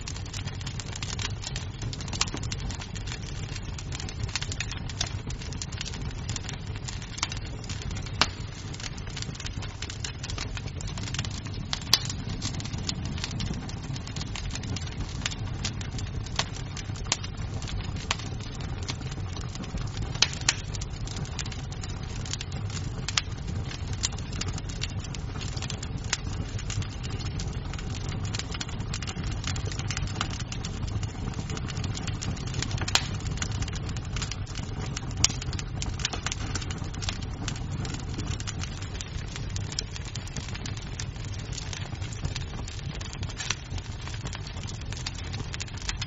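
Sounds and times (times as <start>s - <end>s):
wood fire crackling: 0.0s - 46.0s
sharp wood snaps: 32.8s - 33.5s.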